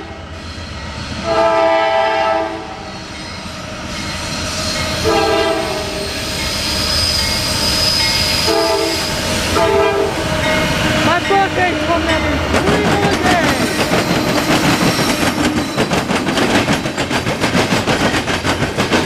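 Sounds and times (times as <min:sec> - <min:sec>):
train rumbling: 0:00.0 - 0:19.0
locomotive air horn blasts: 0:01.2 - 0:02.8, 0:05.0 - 0:06.0, 0:08.4 - 0:10.2.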